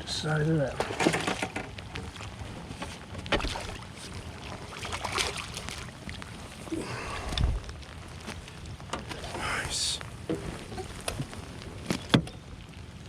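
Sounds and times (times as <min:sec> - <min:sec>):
light rain: 0:00.0 - 0:13.0
knocks and clicks in boat: 0:00.8 - 0:02.0, 0:02.6 - 0:03.7, 0:10.3 - 0:12.4
wind hiss: 0:05.9 - 0:12.2.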